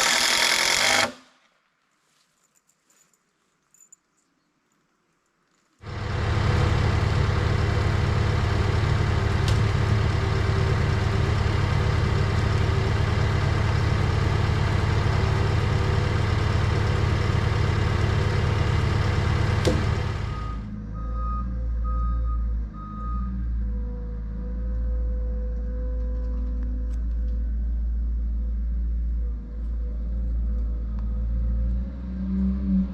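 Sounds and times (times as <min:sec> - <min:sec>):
skid steer engine running: 0:00.0 - 0:01.2, 0:05.8 - 0:23.4
reversing alarm beeping: 0:20.2 - 0:23.5.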